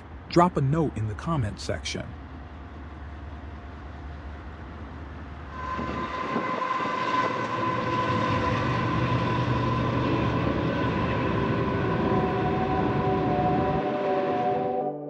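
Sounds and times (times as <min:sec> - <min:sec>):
freight locomotive rumble: 0:00.0 - 0:14.9
high whine: 0:05.4 - 0:15.0.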